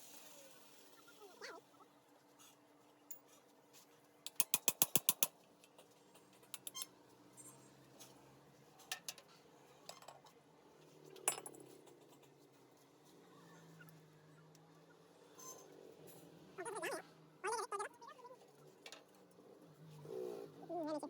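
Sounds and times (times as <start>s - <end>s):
sharp metallic clicks: 4.3s - 5.3s.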